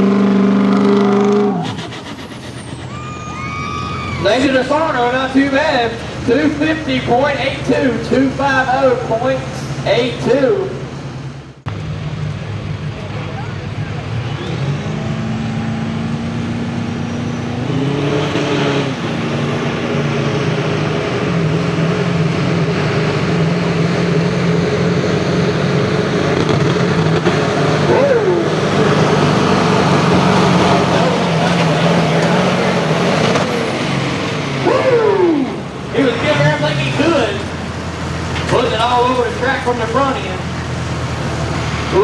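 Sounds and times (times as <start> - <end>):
diesel truck engine at full throttle: 0.0 - 42.0.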